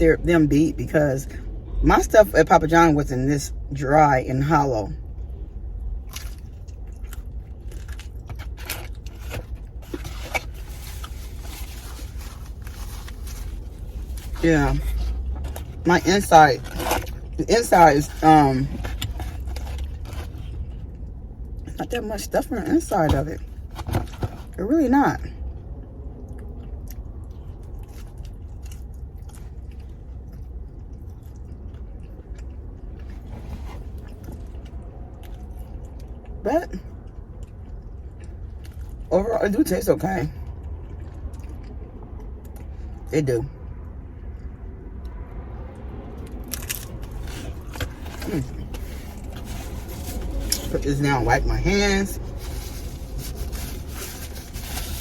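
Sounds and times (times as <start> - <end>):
steady low rumble: 0.0 - 55.0
crunchy chewing: 5.9 - 15.8, 40.4 - 42.7, 44.3 - 50.8.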